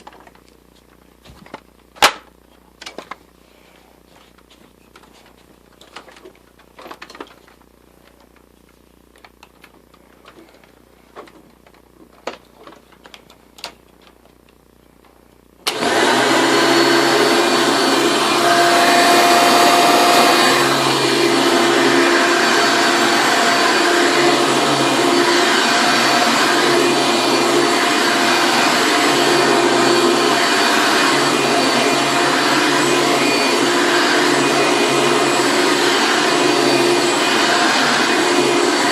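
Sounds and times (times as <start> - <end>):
vacuum cleaner motor whining hum: 15.6 - 38.9.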